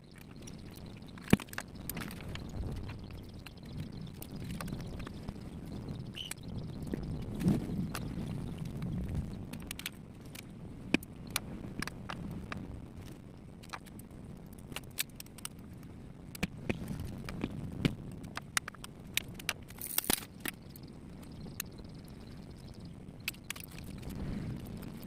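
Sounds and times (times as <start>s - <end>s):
sharp clicks and light knocks: 14.7s - 20.6s.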